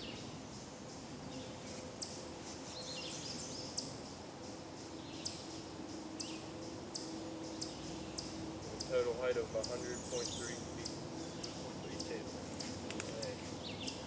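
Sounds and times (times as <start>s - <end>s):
faint steady hum: 0.0s - 14.0s
bird downward-sweeping chirp: 4.9s - 14.0s.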